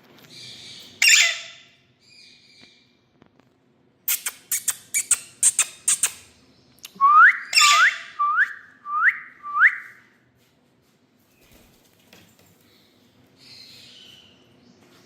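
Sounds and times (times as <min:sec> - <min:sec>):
parakeet whistling: 0:07.2 - 0:09.9.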